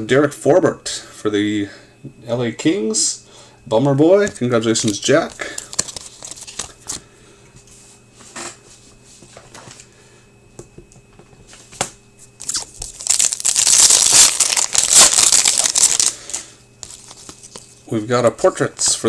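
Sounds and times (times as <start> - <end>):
card wrapper tearing and crinkling: 4.8 - 7.0, 12.4 - 17.7.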